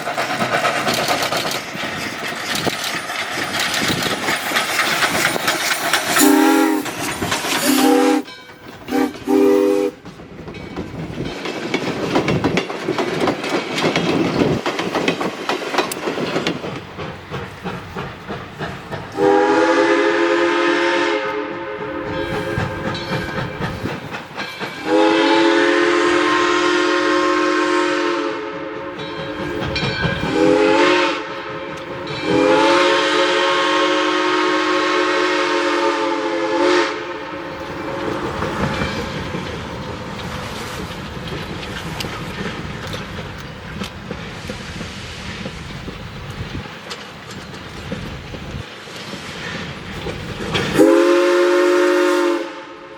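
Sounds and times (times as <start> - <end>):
steady steam hiss: 0.0 - 8.2, 8.8 - 52.9
steam locomotive chime whistle: 6.1 - 7.0, 7.6 - 10.0, 19.2 - 23.6, 24.6 - 39.1, 50.7 - 52.9.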